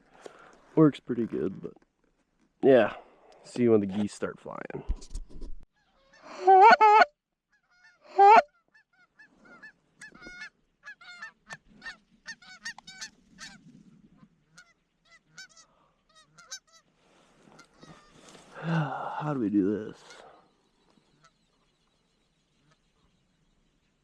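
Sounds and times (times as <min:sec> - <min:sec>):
geese honking: 0:05.9 - 0:07.1, 0:07.7 - 0:18.4, 0:21.0 - 0:21.7.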